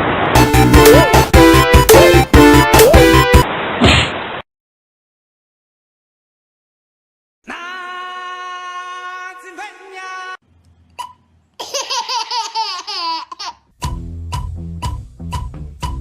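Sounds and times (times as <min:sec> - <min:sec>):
music with steady beat: 0:00.4 - 0:03.4, 0:13.8 - 0:16.0
baby laughing: 0:11.0 - 0:13.7.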